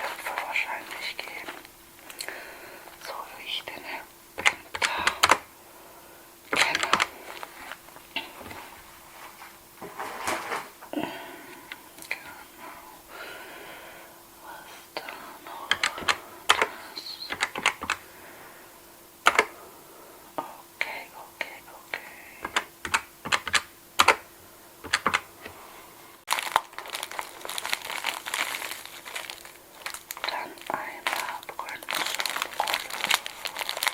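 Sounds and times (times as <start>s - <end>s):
packaging crinkling: 6.5s - 8.6s, 26.3s - 33.9s.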